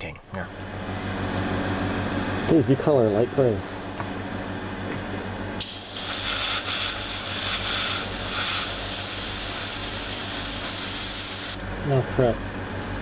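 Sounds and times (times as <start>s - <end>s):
airbrush spraying hiss: 5.6s - 11.6s.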